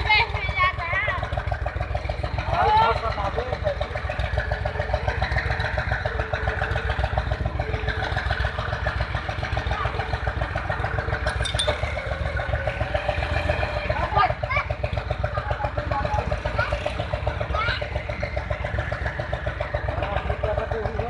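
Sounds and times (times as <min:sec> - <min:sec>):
diesel tractor engine chugging: 0:00.0 - 0:21.0.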